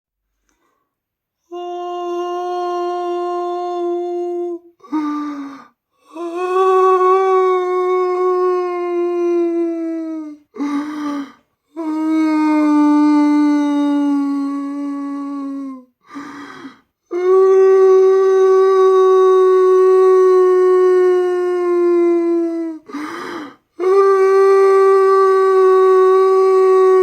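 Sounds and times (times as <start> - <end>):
voice howling in long wails: 6.1 - 10.4, 11.8 - 15.8, 17.1 - 22.8, 23.8 - 27.0
rough breathy gasps: 10.6 - 11.6, 16.0 - 17.0, 22.9 - 23.7.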